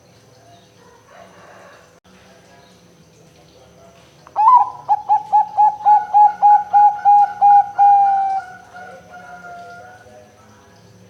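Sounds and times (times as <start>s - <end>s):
dove cooing: 4.4s - 10.1s.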